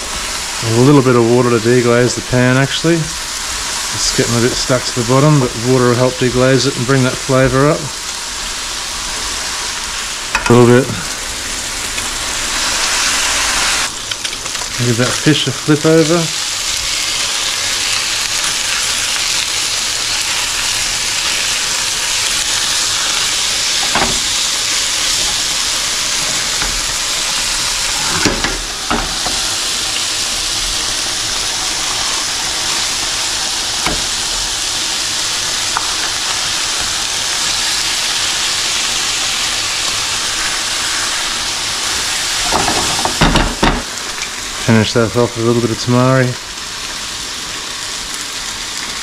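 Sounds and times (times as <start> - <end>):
food frying in hot pans: 0.0 - 49.0
spatula and pan knocks: 23.8 - 24.3.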